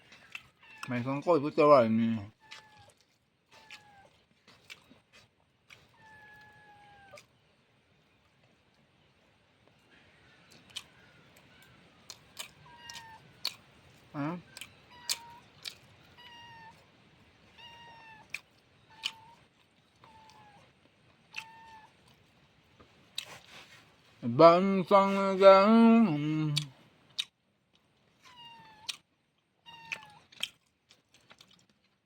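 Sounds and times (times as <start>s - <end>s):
cat meowing: 0.5s - 1.0s, 3.6s - 4.2s, 5.9s - 7.3s, 12.6s - 13.3s, 14.8s - 16.9s, 17.5s - 20.7s, 21.3s - 22.0s, 28.2s - 29.0s, 29.6s - 30.3s.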